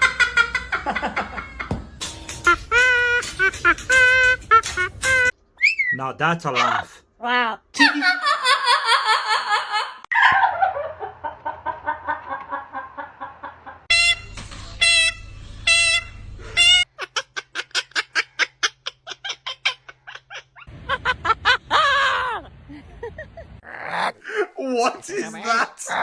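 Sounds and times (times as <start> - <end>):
parrot whistling: 2.5 - 6.0
parrot squawk: 6.6 - 7.0
parrot laugh-like notes: 16.6 - 24.4.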